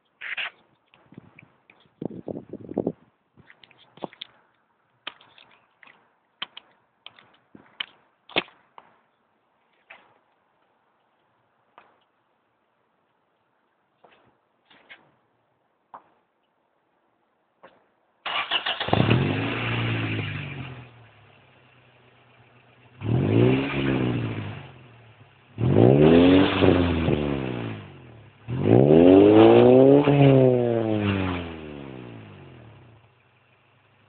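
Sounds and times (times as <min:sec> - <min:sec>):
car engine starting and revving: 0:18.3 - 0:33.1.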